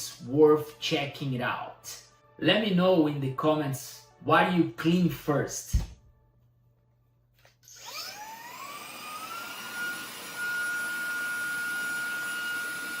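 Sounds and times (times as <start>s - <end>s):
handheld vacuum motor whine: 7.6s - 13.0s.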